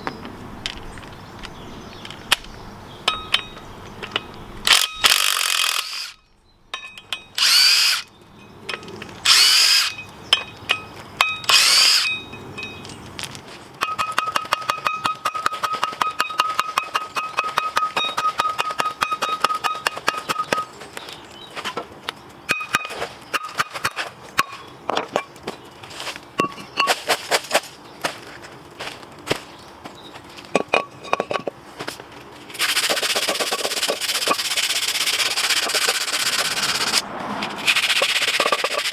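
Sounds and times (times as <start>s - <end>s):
power tool running: 4.6s - 6.2s, 7.4s - 8.1s, 9.2s - 10.0s, 11.5s - 12.1s
hand ratchet clicking: 4.7s - 6.2s, 7.4s - 8.1s, 9.3s - 10.0s, 11.5s - 12.2s, 32.6s - 37.0s.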